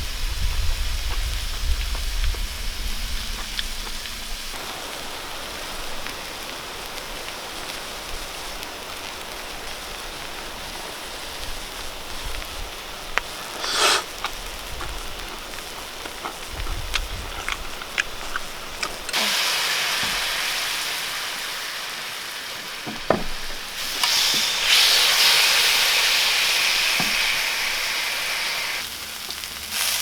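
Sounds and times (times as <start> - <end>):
meat sizzling on a griddle: 0.0 - 30.0
fat popping and spitting: 13.2 - 19.4, 26.8 - 27.4.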